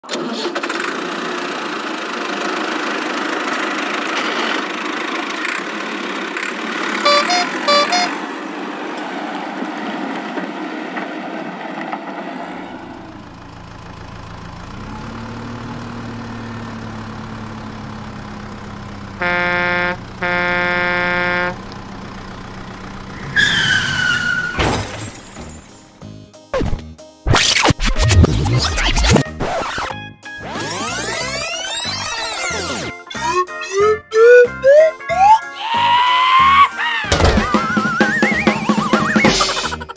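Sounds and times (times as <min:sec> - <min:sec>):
cartoon truck engine running: 0:00.2 - 0:08.2, 0:12.6 - 0:26.2, 0:27.3 - 0:39.9
truck horn blasts: 0:07.0 - 0:08.2, 0:12.6 - 0:26.0
truck horn toots: 0:07.0 - 0:08.2, 0:12.6 - 0:26.0
falling squeal: 0:12.8 - 0:26.0.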